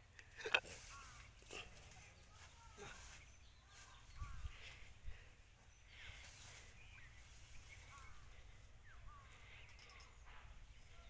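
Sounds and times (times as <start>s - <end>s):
faint bird chirps: 0.5s - 11.0s.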